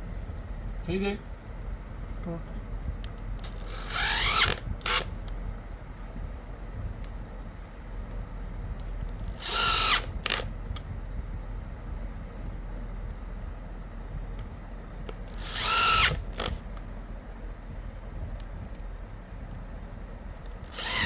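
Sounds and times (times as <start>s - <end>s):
electric drill motor whining: 3.4s - 5.2s, 9.2s - 10.5s, 15.2s - 16.6s, 20.7s - 21.0s.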